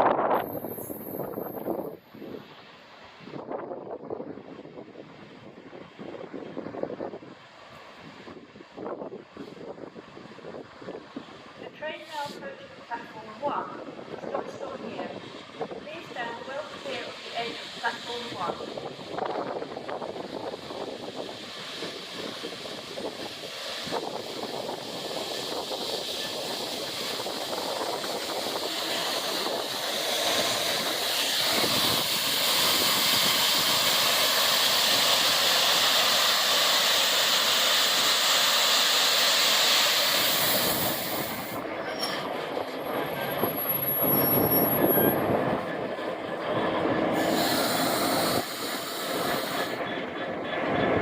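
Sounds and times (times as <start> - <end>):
train rolling over rails: 0.0 - 51.0.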